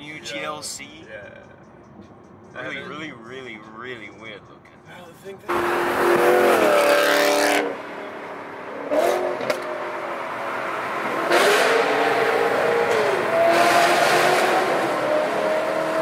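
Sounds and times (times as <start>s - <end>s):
car engines accelerating hard: 5.5s - 16.0s.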